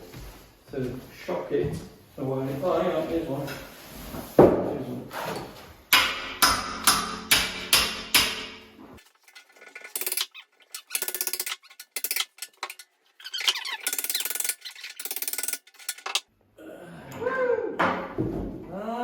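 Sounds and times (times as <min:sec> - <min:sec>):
hammer striking metal tap: 0:05.9 - 0:08.8.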